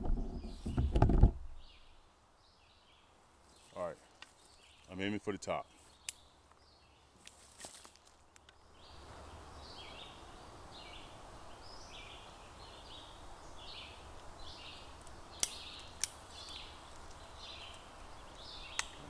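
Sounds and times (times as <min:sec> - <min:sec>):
bird chirping: 0:08.2 - 0:19.0.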